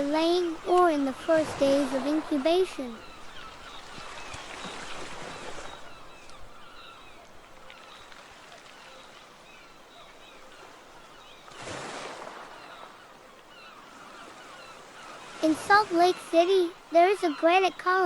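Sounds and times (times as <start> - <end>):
water rushing: 0.0 - 6.2, 14.3 - 18.0
birds chirping: 0.0 - 18.0.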